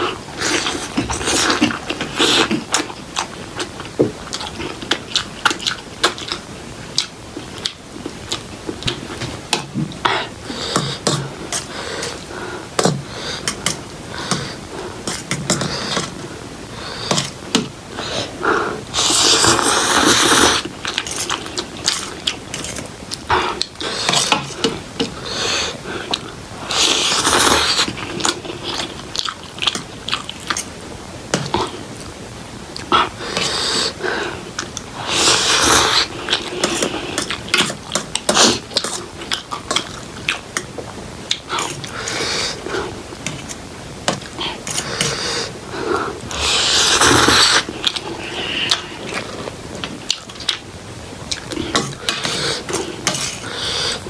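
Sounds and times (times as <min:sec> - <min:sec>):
noodle slurps: 0:00.0 - 0:03.7, 0:18.0 - 0:29.0, 0:32.8 - 0:40.4, 0:44.5 - 0:50.6.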